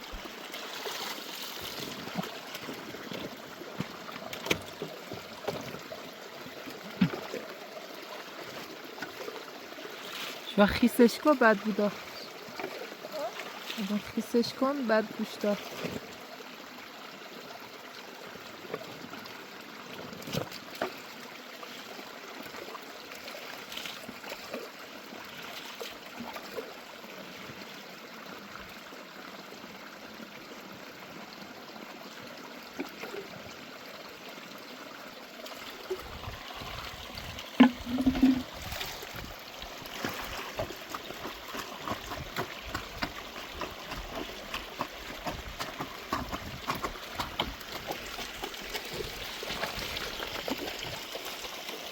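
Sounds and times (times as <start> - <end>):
running water: 0.0 - 51.9
small knocks: 37.6 - 38.4.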